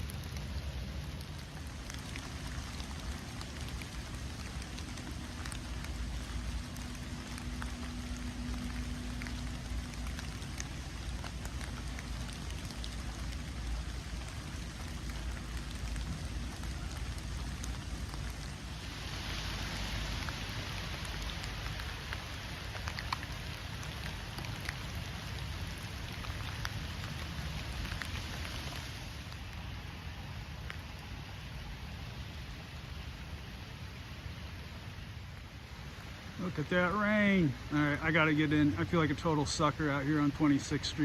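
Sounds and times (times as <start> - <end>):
low rumble: 0.0 - 22.1
steady rain falling: 0.0 - 41.0.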